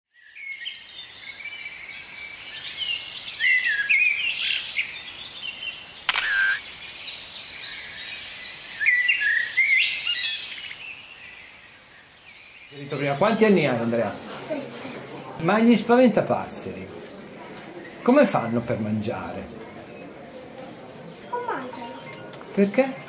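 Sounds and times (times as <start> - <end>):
small birds chirping: 0.1 - 14.7
brief steady beep: 6.1 - 6.6
sharp click: 6.1 - 6.6.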